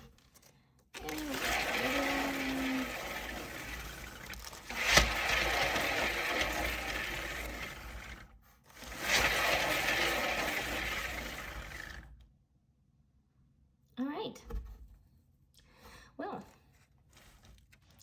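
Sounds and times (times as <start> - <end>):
turntable bearing whirring and rattling: 1.0 - 12.2.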